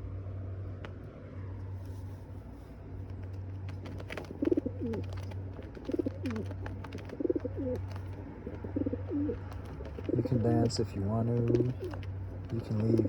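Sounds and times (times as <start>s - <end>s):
steady low hum: 0.0s - 13.0s
pigeon cooing: 3.2s - 13.0s.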